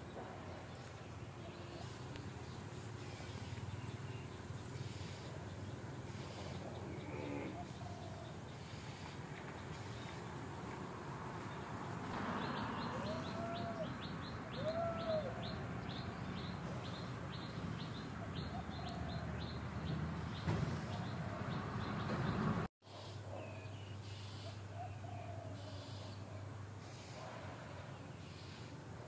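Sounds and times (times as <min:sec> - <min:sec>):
birds chirping: 0:00.0 - 0:27.1
rising-and-falling bird calls: 0:12.4 - 0:22.2.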